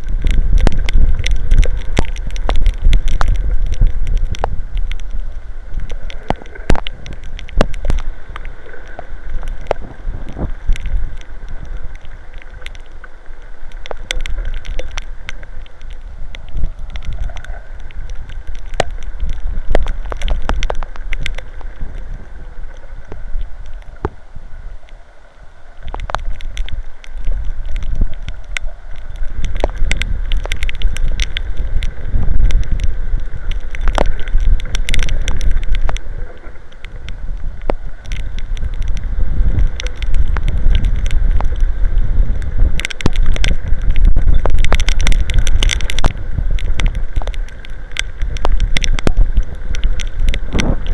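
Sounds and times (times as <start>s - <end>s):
rain ticking near microphone: 0.0s - 50.9s
wind buffeting microphone: 9.6s - 11.7s, 29.2s - 36.2s, 36.8s - 50.9s.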